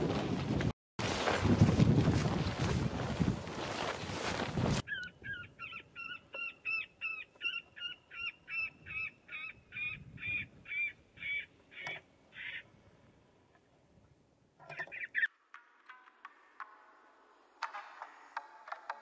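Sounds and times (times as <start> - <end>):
wind buffeting microphone: 0.0 - 5.5, 9.6 - 11.3.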